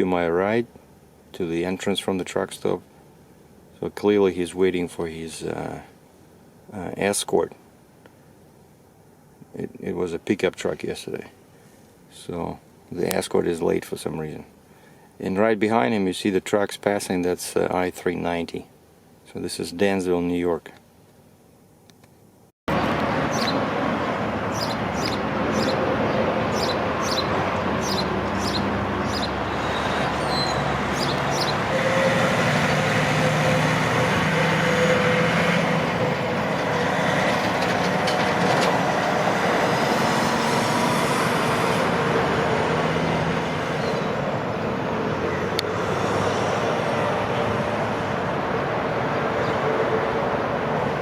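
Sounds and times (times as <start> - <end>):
road traffic noise: 22.7 - 51.0
short high squeaks: 26.6 - 32.3.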